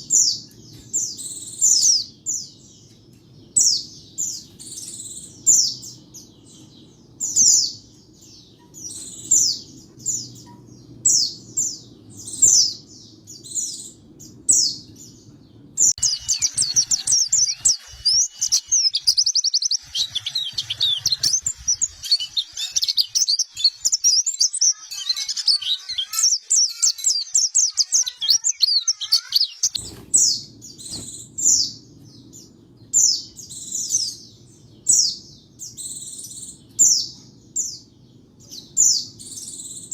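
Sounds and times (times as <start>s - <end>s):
bird chirping: 0.0s - 39.9s
bird twittering song: 0.0s - 39.9s.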